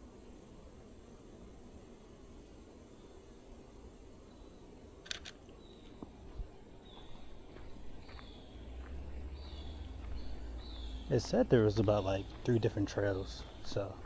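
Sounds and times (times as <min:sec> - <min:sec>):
camera shutter double click: 0:05.1 - 0:05.4
bird chirps: 0:06.9 - 0:14.0.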